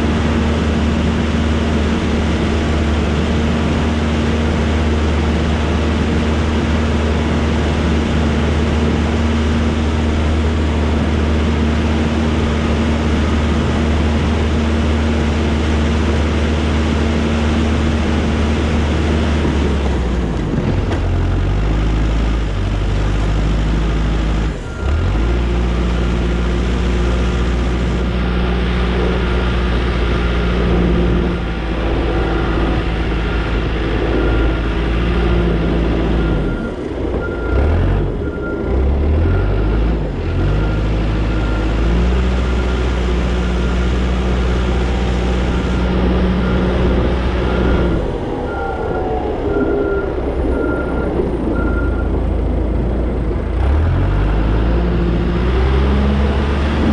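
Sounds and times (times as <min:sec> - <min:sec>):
diesel engine running under load: 0:00.0 - 0:56.9
backup alarm beeping: 0:45.3 - 0:52.2.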